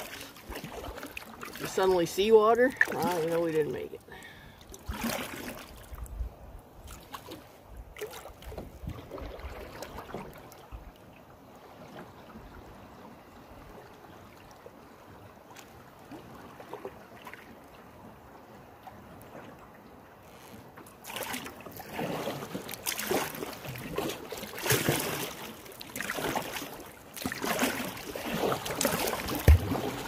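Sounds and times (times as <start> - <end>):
water splashing against canoe: 0.0 - 30.0.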